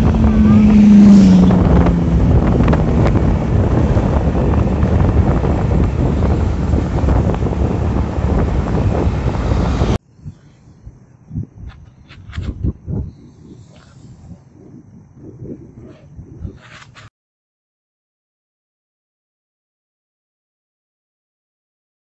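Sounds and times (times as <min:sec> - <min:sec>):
low engine hum: 0:00.0 - 0:16.6
wind rushing over microphone: 0:00.0 - 0:17.1.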